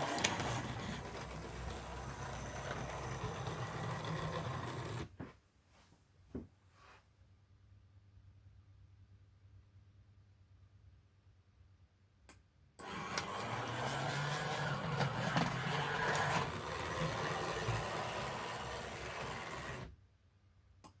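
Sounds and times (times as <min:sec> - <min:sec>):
clicks: 0:00.0 - 0:01.8
model tram motor whirring: 0:00.0 - 0:05.1, 0:12.8 - 0:19.9.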